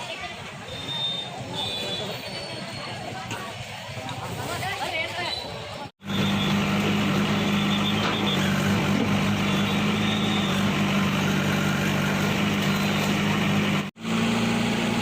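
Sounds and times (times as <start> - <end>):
bulldozer engine running: 6.0 - 15.0.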